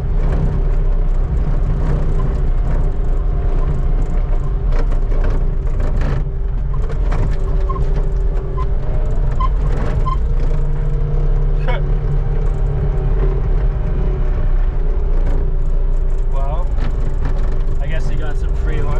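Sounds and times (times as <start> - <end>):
skid steer engine running: 0.0 - 18.9
sharp knocks and scrapes: 1.4 - 11.3, 15.0 - 18.9.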